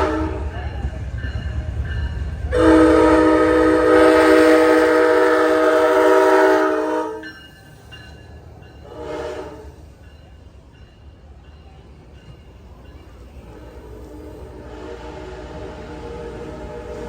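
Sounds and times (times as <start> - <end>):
locomotive air horn: 0.0 - 0.6, 2.5 - 7.2, 8.9 - 9.7, 13.5 - 17.0
train rumbling past: 0.0 - 17.0.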